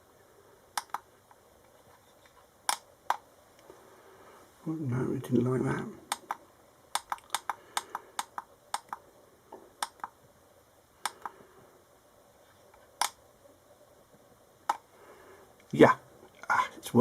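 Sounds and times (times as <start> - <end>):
sharp clicks of meter clips: 6.1 - 9.0.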